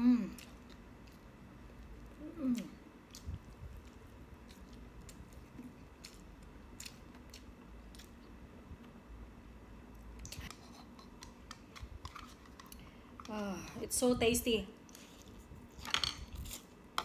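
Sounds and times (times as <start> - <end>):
person humming: 0.0 - 0.4, 2.2 - 2.8
person chewing food: 0.3 - 9.0.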